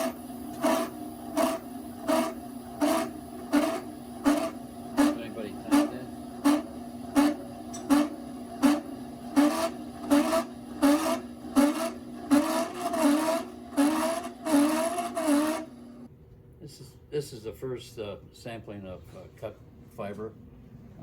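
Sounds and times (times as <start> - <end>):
grinder motor hum: 0.0 - 16.1.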